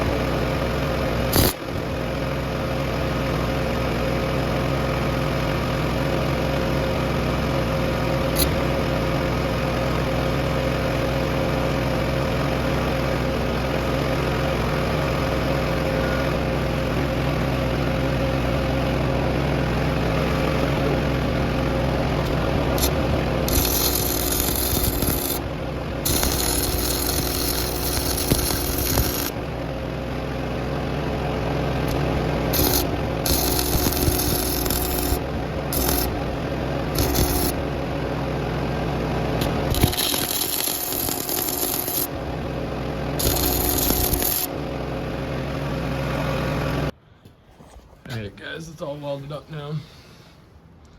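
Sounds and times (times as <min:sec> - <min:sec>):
steady machine hum: 0:00.0 - 0:47.1
crackling welding arc: 0:01.4 - 0:01.6, 0:22.3 - 0:29.4, 0:31.9 - 0:37.6, 0:39.4 - 0:42.1, 0:43.2 - 0:44.5.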